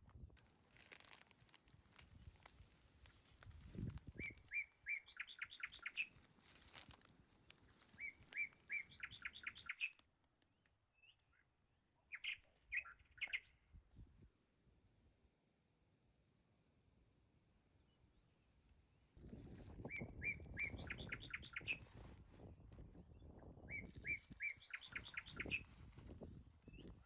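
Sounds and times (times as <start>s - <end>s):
songbird singing with trill: 4.1s - 6.2s, 7.9s - 10.0s, 12.1s - 13.6s, 19.8s - 22.0s, 23.1s - 26.0s
bird chirps: 4.1s - 6.9s, 7.7s - 10.0s, 10.9s - 13.6s, 19.8s - 22.1s, 23.2s - 27.0s.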